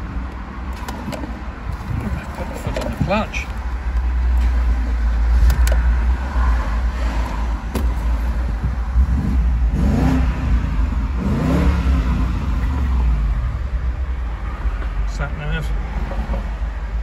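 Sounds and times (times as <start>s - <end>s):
car engine revving: 4.4s - 16.4s.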